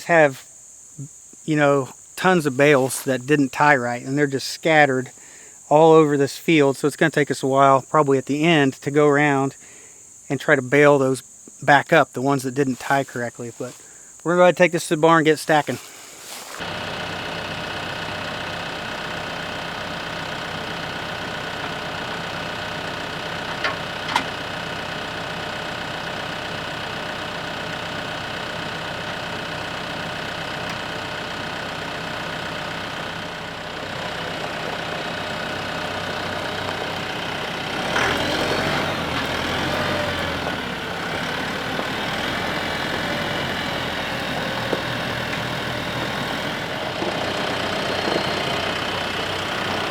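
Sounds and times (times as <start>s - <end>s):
tractor diesel engine running: 1.7s - 5.1s, 15.5s - 49.9s.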